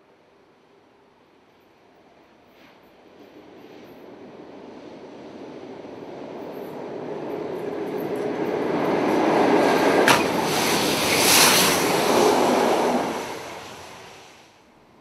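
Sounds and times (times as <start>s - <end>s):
train wheels rumbling on viaduct: 2.1s - 14.4s
sharp knock of wagons: 10.0s - 10.5s.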